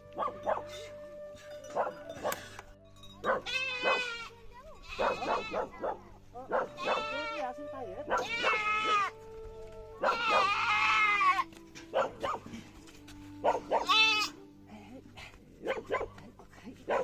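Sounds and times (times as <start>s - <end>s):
goats bleating: 3.4s - 4.3s, 6.8s - 7.5s, 8.2s - 9.2s, 10.1s - 11.5s, 13.8s - 14.4s.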